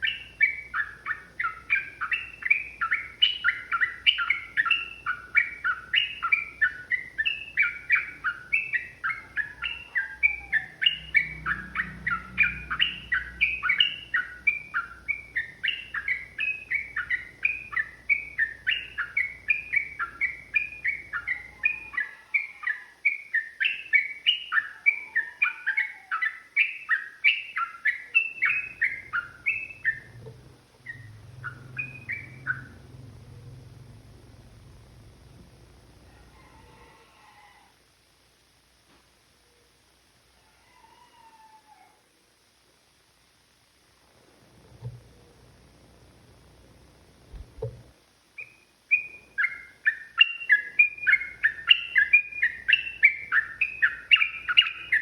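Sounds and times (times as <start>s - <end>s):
bulbul chattering song: 0.0s - 36.1s, 48.4s - 55.0s.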